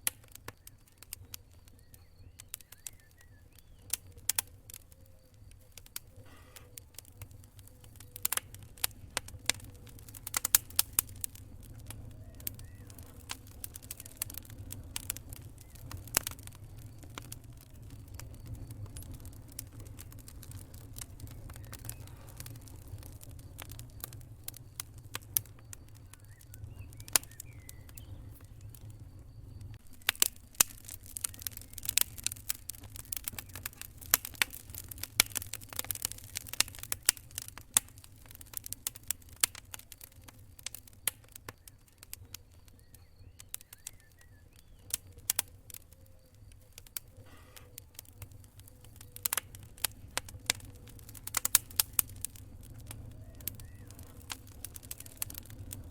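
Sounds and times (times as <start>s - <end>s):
campfire crackling and popping: 0.0s - 55.9s
low rumble of fire: 0.0s - 55.9s.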